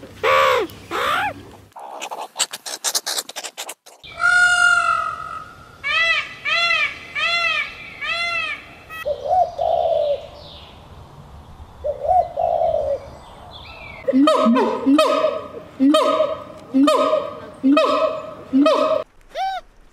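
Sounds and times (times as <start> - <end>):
peacock calling: 0.2 - 3.2, 4.0 - 10.2
dove cooing: 9.0 - 10.3, 11.9 - 13.0.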